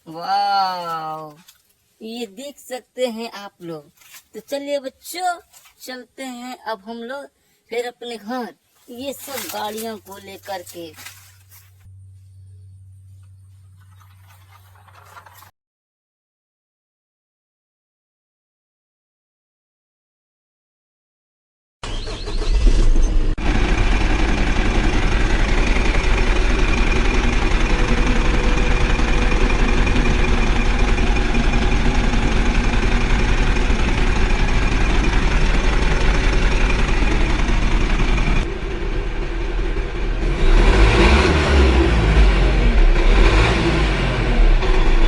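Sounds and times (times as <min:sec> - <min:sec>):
vehicle engine revving: 0:21.8 - 0:45.0.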